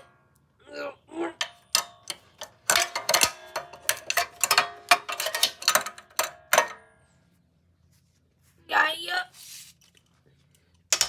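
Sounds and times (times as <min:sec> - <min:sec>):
metallic tool clicks and clinks: 0:01.4 - 0:06.8.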